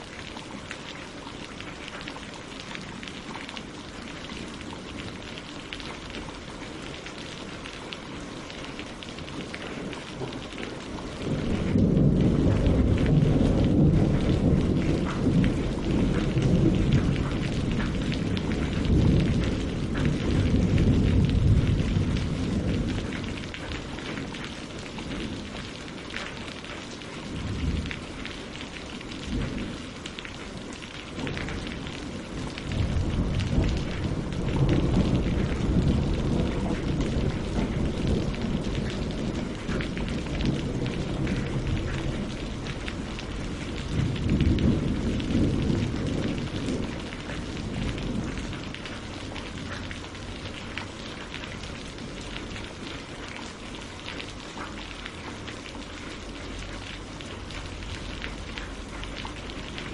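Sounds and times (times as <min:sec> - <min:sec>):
rain pattering on leaves and water: 0:00.0 - 0:59.9
rolls of thunder: 0:11.2 - 0:23.4, 0:31.2 - 0:42.8, 0:43.4 - 0:48.8.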